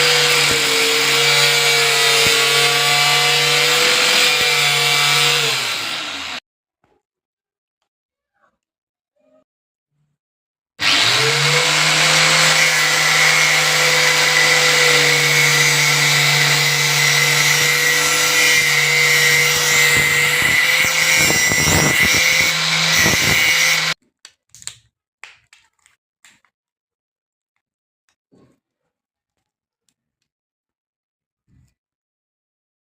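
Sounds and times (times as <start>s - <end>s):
angle grinder whining: 0.0s - 6.4s, 10.8s - 24.0s.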